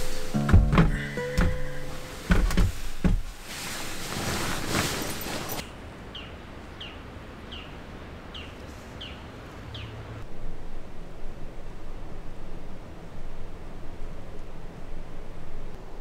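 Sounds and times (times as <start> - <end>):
rustling hiss: 0.0 - 5.7
bird chirping: 6.1 - 10.0.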